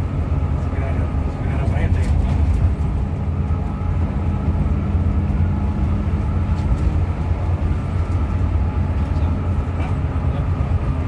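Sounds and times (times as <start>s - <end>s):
coach engine drone: 0.0s - 11.0s
road rumble: 0.0s - 11.0s.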